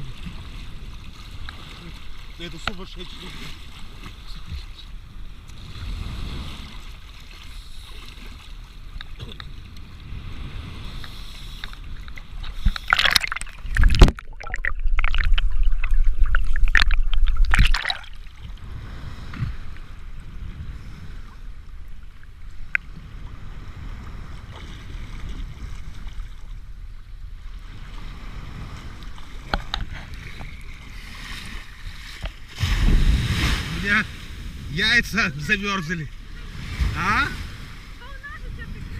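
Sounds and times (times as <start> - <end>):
sea water splashing and lapping: 0.0 - 38.9
sharp splashes: 12.6 - 18.5, 31.0 - 34.7.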